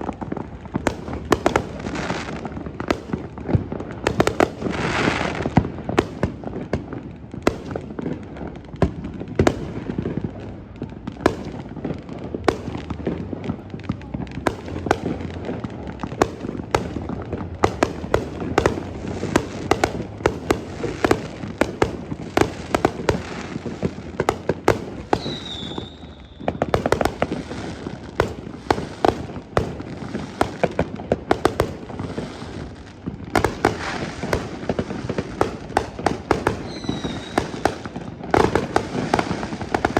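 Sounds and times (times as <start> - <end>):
fireworks bangs and crackling: 0.0 - 39.9
whistling tone: 25.2 - 26.5.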